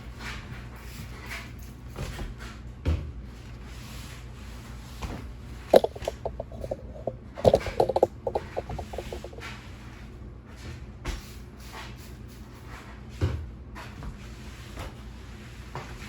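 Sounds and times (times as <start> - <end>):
rattling clicks: 5.7 - 9.4
low steady hum: 5.7 - 9.5.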